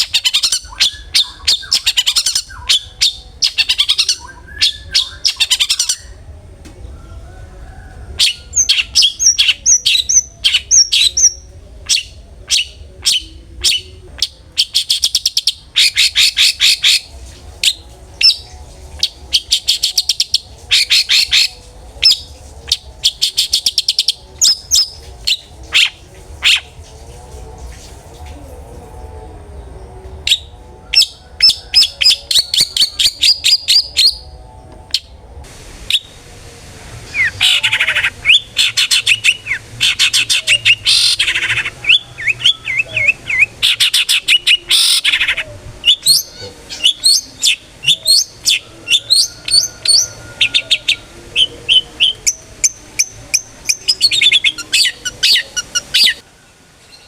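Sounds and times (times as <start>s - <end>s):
shrike singing sharp trills: 8.2s - 26.9s, 29.6s - 35.2s.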